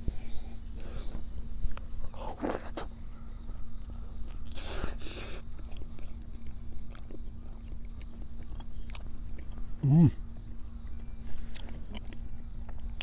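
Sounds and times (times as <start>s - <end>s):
person chewing food: 4.2s - 9.8s, 10.4s - 13.0s.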